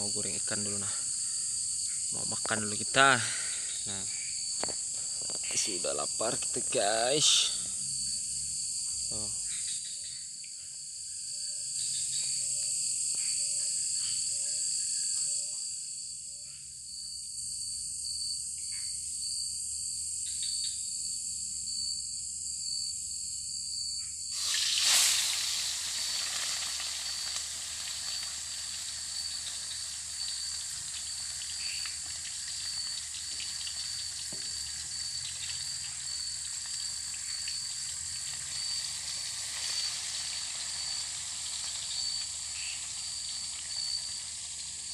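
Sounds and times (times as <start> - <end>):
insects trilling: 0.0 - 44.9
fish sizzling in hot oil: 24.3 - 44.9.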